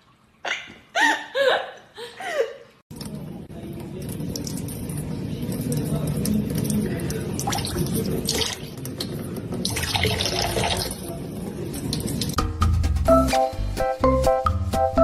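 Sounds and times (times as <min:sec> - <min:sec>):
running water splashing: 0:02.9 - 0:12.4
music: 0:12.4 - 0:15.0.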